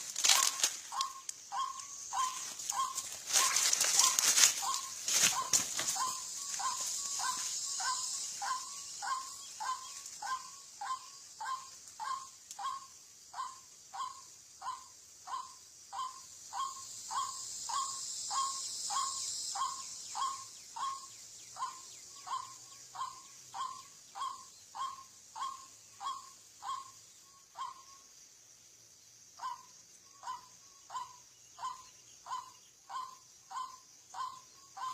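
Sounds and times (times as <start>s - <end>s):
waterhen calling: 0.0s - 12.8s
high insect drone: 0.0s - 34.9s.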